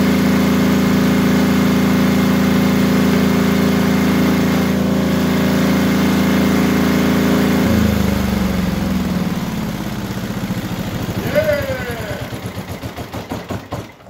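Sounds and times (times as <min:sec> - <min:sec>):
diesel generator engine running: 0:00.0 - 0:14.0.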